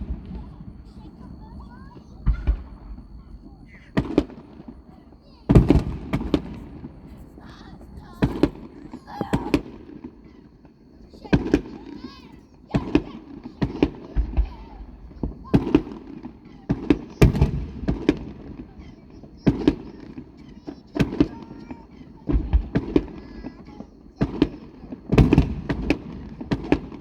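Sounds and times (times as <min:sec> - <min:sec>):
echoing rumble: 0:00.0 - 0:10.0
fireworks bangs: 0:00.0 - 0:27.0.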